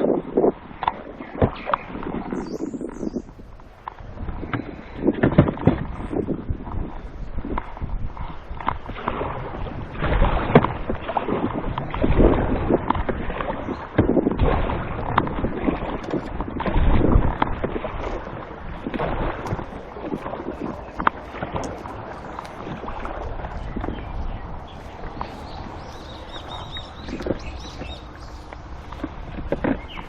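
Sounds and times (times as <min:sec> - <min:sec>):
paddle splashing in water: 0:00.0 - 0:30.0
wind buffeting microphone: 0:00.0 - 0:30.0
knocks against hull: 0:29.0 - 0:30.0.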